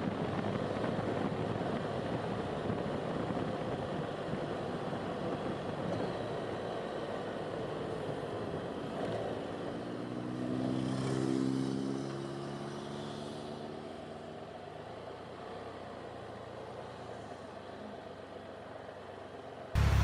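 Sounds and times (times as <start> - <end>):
vehicle passing by: 9.8 - 13.9, 19.8 - 20.0.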